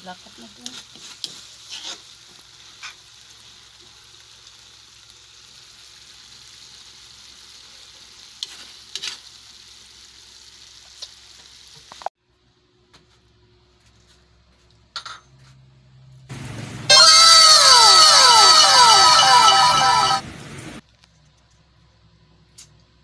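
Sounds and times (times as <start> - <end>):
food sizzling in a frying pan: 0.0 - 12.1, 16.3 - 20.8.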